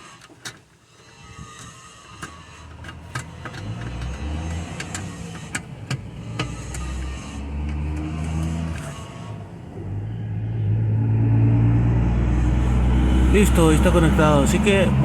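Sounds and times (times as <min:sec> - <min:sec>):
vehicle engine rumble: 0:00.0 - 0:15.0
light clicks and taps on parts: 0:00.2 - 0:08.9.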